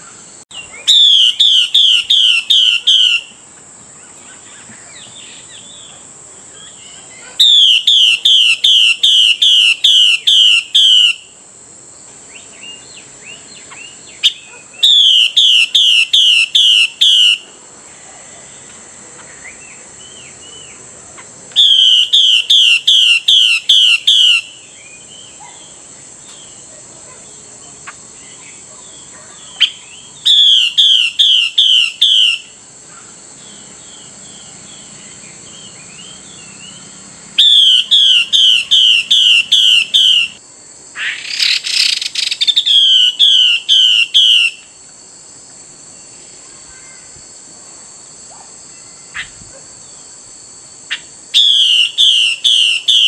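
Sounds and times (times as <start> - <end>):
bird calling sharp repeated notes: 0.0 - 3.4, 6.6 - 11.4, 12.4 - 17.6, 19.3 - 25.7, 29.4 - 32.6, 35.6 - 40.4, 41.0 - 44.8, 50.9 - 53.0
steady high hiss: 0.0 - 53.0.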